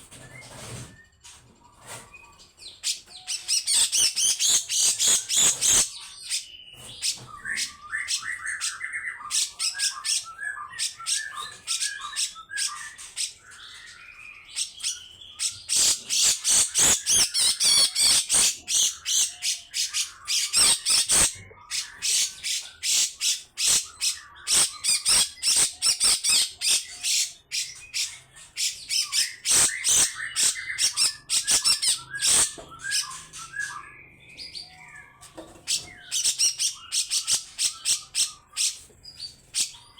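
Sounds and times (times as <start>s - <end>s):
bird harsh rapid calls: 2.9s - 7.2s, 14.6s - 33.8s.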